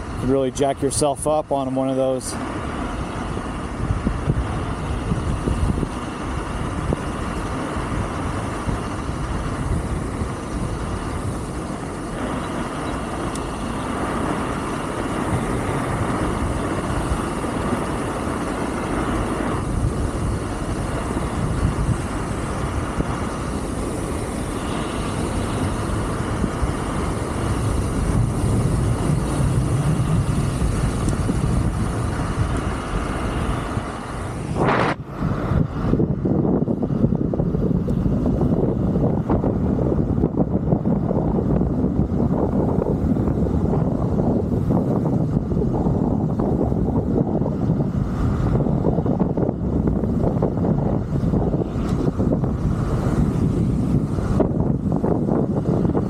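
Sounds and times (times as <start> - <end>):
wind on microphone: 0.0 - 56.0
scooter tyres on gravel: 2.6 - 35.1.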